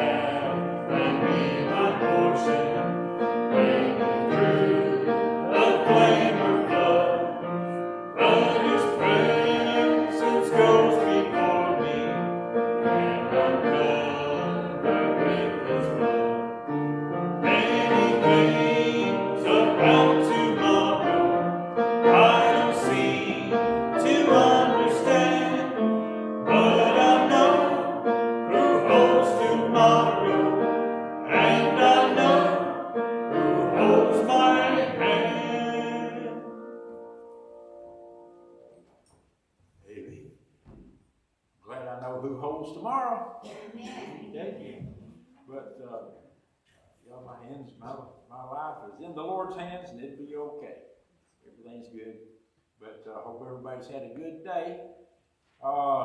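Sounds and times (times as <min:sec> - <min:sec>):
congregation singing a hymn: 0:00.0 - 0:38.7
piano accompaniment: 0:00.0 - 0:39.0.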